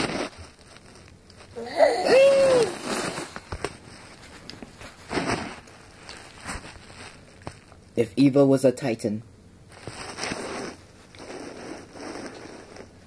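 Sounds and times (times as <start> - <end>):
baby squealing: 1.6 - 3.0
breathy wheezy sounds: 1.6 - 3.4.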